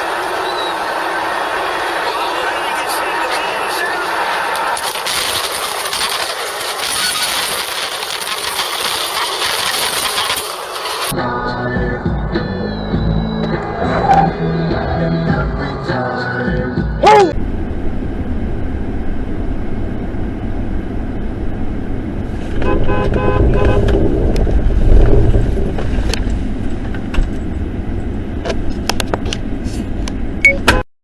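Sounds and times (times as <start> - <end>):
car road and engine noise: 0.0 - 30.8
car horn beeps: 22.6 - 23.9, 30.4 - 30.8.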